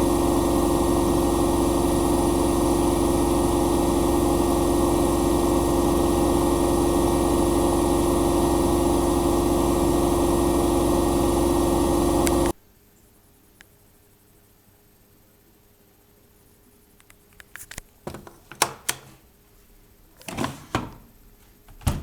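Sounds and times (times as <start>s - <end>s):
washing machine humming and whining: 0.0s - 12.6s, 20.2s - 22.0s.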